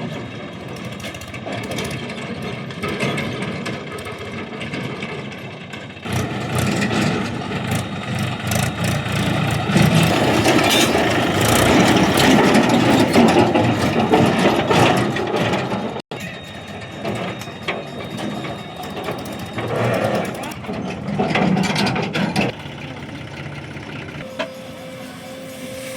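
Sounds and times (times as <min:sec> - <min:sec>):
metal knocks and clanks: 0:00.0 - 0:22.6
diesel engine under load: 0:00.0 - 0:25.9.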